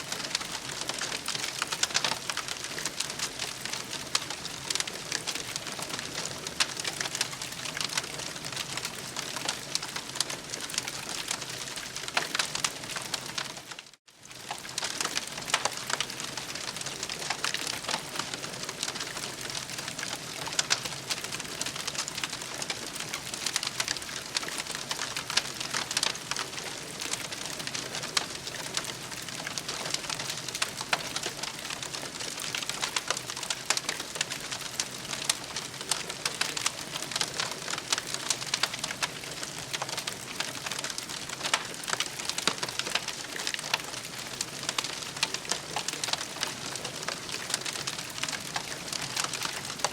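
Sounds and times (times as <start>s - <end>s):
campfire crackling: 0.0s - 49.9s.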